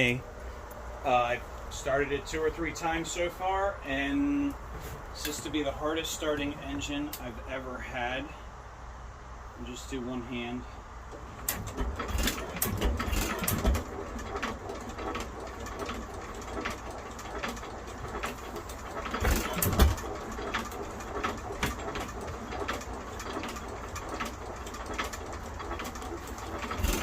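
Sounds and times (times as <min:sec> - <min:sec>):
hit-and-miss engine starting: 0:11.1 - 0:27.0.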